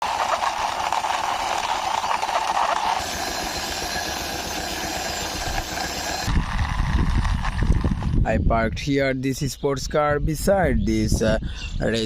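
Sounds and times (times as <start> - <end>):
engine-like running noise: 0.0 - 8.3.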